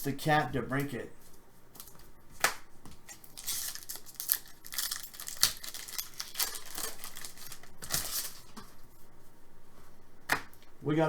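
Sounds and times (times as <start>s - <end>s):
wrapper crinkling: 3.1s - 8.8s.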